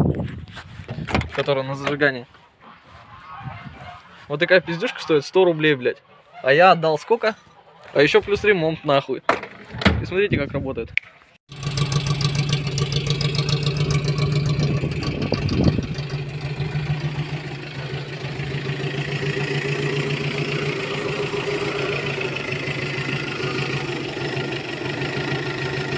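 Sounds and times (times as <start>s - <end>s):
petrol engine idling: 11.5s - 25.9s.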